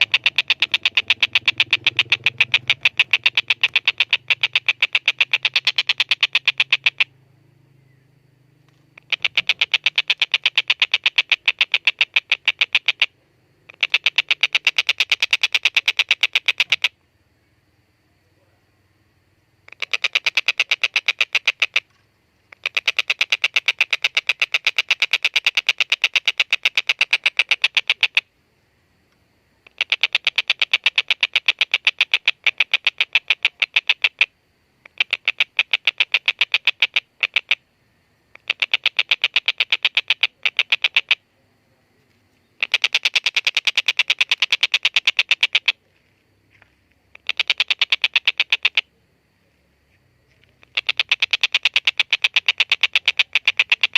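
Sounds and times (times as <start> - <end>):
kingfisher chattering calls: 0.0 - 7.1, 9.0 - 13.1, 13.7 - 16.9, 19.7 - 21.8, 38.4 - 41.2, 42.6 - 45.8, 47.2 - 48.9, 50.6 - 53.9.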